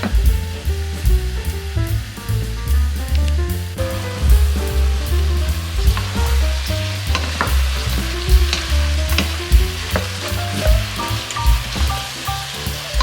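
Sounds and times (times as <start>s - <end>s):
background music with bass line: 0.0s - 13.0s
meat sizzling in a pan: 4.2s - 13.0s.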